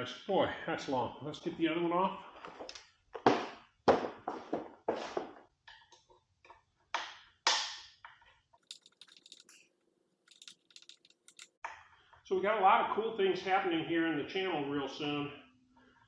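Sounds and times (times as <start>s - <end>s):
small metal parts clicking: 8.6s - 11.6s.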